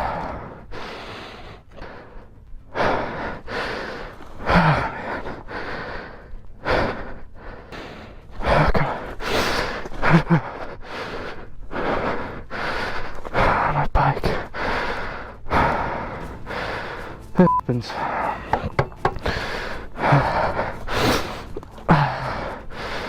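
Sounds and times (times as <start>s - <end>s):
man breathing hard: 0.0s - 23.0s
man groaning: 21.9s - 22.4s.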